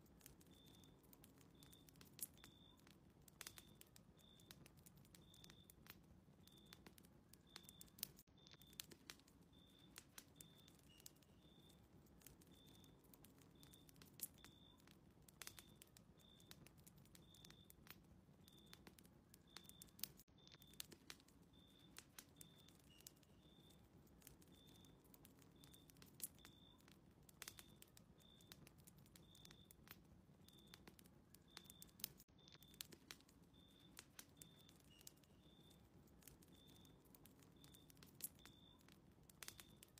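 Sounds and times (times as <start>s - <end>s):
fireplace crackling and popping: 0.0s - 39.9s
low rumble of fire: 0.0s - 39.9s.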